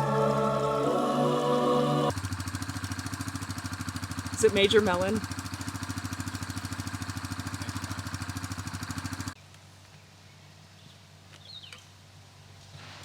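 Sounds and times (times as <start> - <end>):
small engine running: 0.0 - 9.4.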